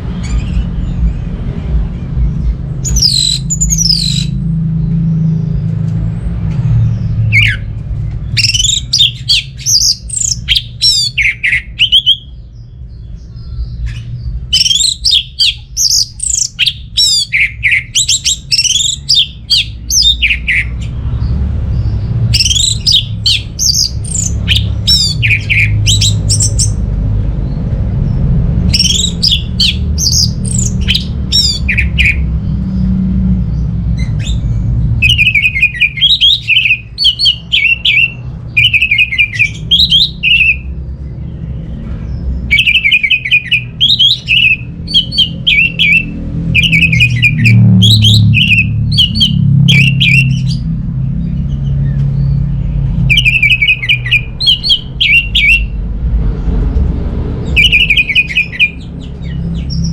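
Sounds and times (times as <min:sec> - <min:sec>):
steady low rumble: 0:00.0 - 0:59.9
thrush singing whistled phrases: 0:02.8 - 0:04.4, 0:07.2 - 0:07.7, 0:08.3 - 0:12.4, 0:14.4 - 0:20.8, 0:22.3 - 0:26.8, 0:28.7 - 0:32.3, 0:35.0 - 0:40.7, 0:42.5 - 0:50.6, 0:53.1 - 0:55.8, 0:57.5 - 0:59.9.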